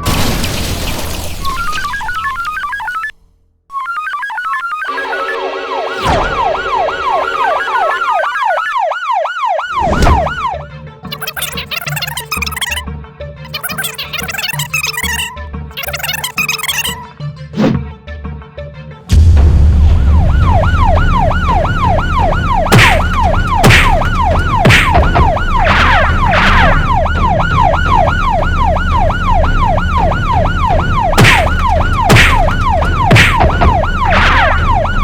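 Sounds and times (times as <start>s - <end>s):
siren yelping: 1.6s - 12.8s, 13.5s - 17.0s, 20.0s - 35.0s
low engine rumble: 19.1s - 35.0s.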